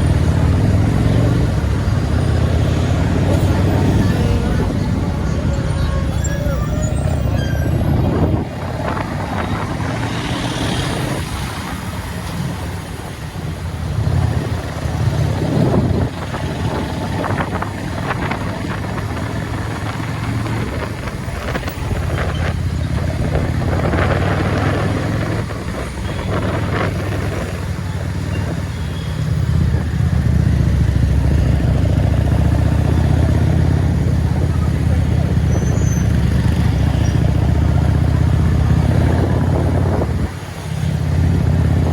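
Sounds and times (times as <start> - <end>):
road and traffic noise: 0.0 - 41.9.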